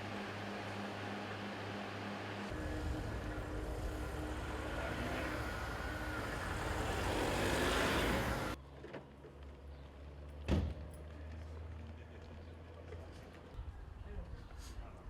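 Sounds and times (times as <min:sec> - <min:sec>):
low hum: 0:00.0 - 0:08.6
street traffic noise: 0:00.0 - 0:14.2
vehicle passing by: 0:02.4 - 0:08.6.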